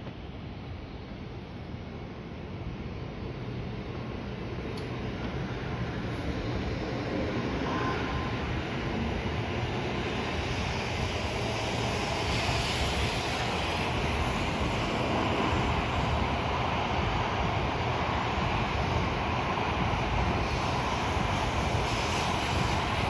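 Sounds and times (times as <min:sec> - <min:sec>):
train wheels rumbling on rail: 0:00.0 - 0:23.0
rushing hiss: 0:05.4 - 0:23.0.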